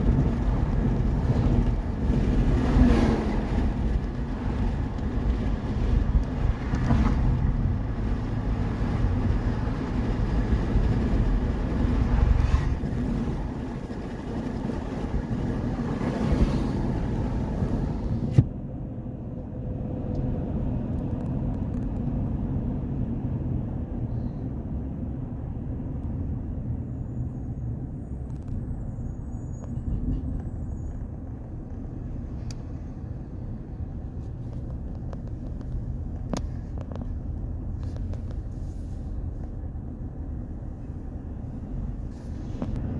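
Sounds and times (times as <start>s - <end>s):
road traffic rumble: 0.0s - 42.9s.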